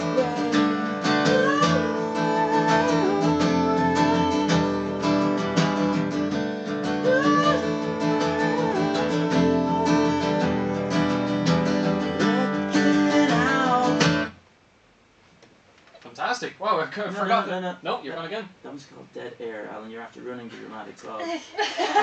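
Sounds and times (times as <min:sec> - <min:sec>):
strummed acoustic guitar: 0:00.0 - 0:14.4
gliding wavering melody line: 0:06.8 - 0:11.2.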